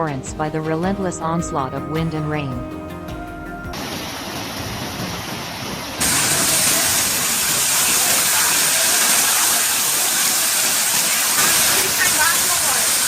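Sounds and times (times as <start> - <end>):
rain hiss: 3.7 - 13.0.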